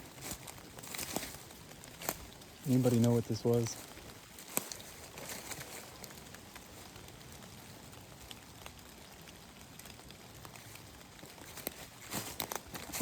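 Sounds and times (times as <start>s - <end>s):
footsteps through dry leaves: 0.0s - 7.2s, 10.4s - 13.0s
faint woods background: 0.0s - 13.0s.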